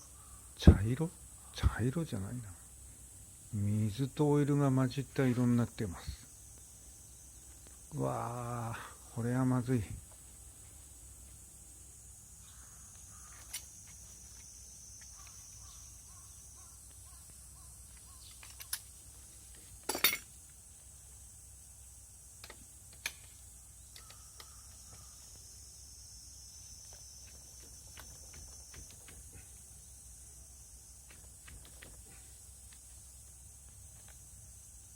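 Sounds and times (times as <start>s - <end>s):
faint high hiss: 0.0s - 34.9s
metallic clicks of tools: 13.3s - 15.4s, 18.0s - 18.9s, 22.4s - 24.6s.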